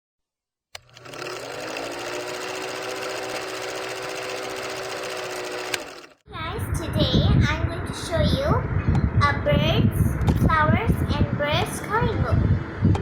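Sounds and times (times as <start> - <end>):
motor switch click: 0.8 - 1.3, 5.4 - 6.1
small electric motor whirring: 0.8 - 6.2.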